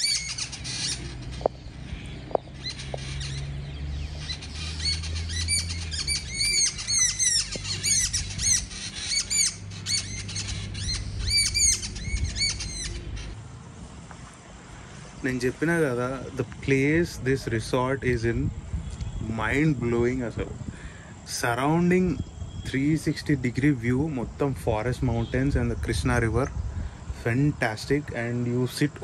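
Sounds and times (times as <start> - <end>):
low steady rumble: 0.0 - 21.0
small birds chirping: 0.0 - 29.0.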